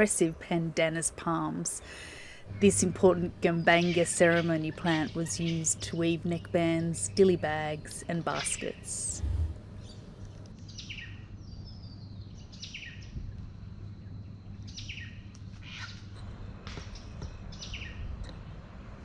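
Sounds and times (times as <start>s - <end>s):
low background rumble: 0.0s - 19.0s
birds calling: 1.6s - 11.1s.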